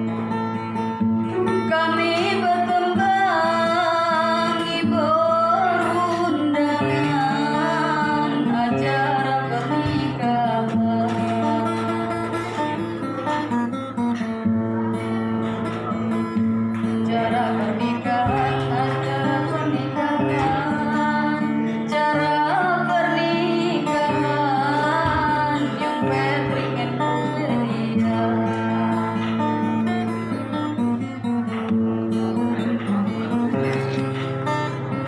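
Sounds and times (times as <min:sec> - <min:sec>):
guitar accompaniment: 0:00.0 - 0:35.0.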